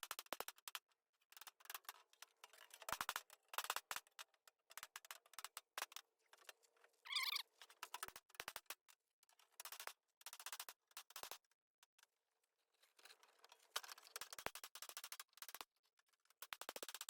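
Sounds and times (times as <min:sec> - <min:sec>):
wavering squeak: 0:07.1 - 0:07.4.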